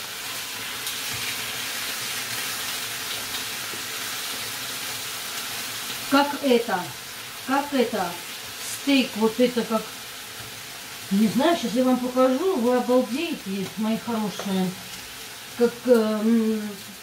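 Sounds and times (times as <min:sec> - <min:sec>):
fish sizzling in a pan: 0:00.0 - 0:17.0
woman speaking: 0:06.1 - 0:09.9, 0:11.1 - 0:14.8, 0:15.6 - 0:16.9.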